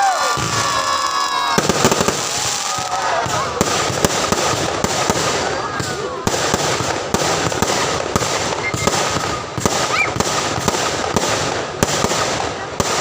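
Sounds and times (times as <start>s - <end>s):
rising firework whistle: 0.0s - 3.6s, 8.4s - 10.2s
fireworks bangs: 0.0s - 13.0s
fireworks crackling: 0.0s - 13.0s.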